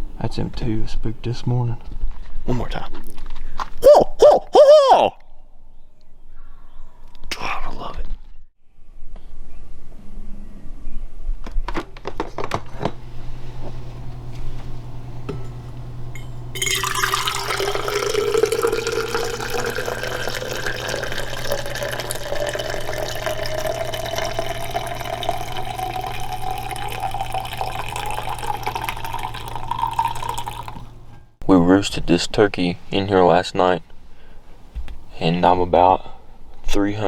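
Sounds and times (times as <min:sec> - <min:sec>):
low steady hum: 0:13.0 - 0:31.4
liquid pouring into container: 0:16.6 - 0:31.1.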